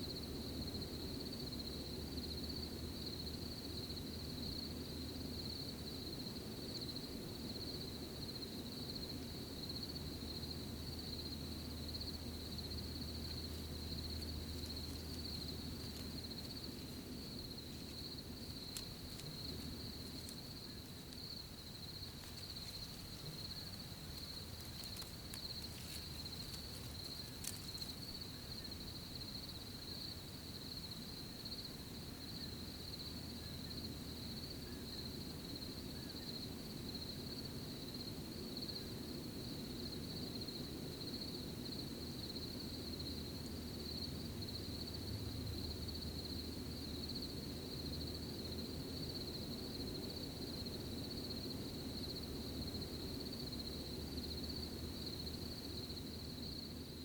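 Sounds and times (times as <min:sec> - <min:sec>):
low background rumble: 0:00.0 - 0:34.5
crickets chirping: 0:00.0 - 0:57.0
faint crackles: 0:13.0 - 0:28.8.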